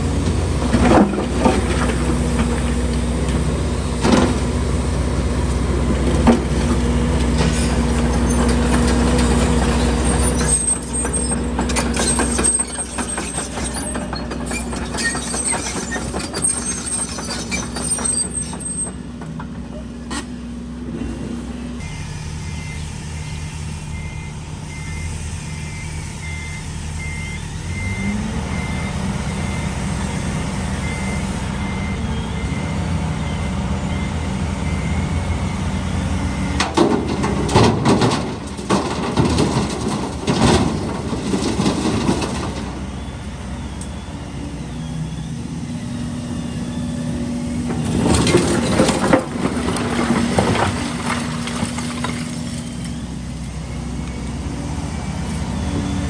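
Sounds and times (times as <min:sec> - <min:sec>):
diesel engines running: 0:00.0 - 0:56.0
concrete rubble clattering and scraping: 0:06.2 - 0:19.0, 0:36.8 - 0:42.7, 0:47.7 - 0:53.0
reversing beeper: 0:21.8 - 0:36.6, 0:42.7 - 0:56.0
engine revving: 0:27.0 - 0:36.6.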